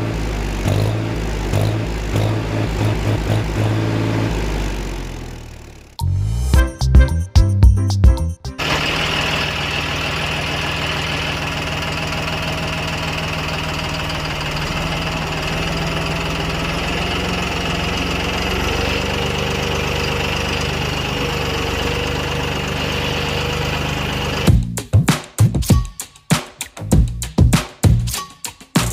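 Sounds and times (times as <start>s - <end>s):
tractor engine idling: 0.0s - 6.0s, 8.5s - 24.6s.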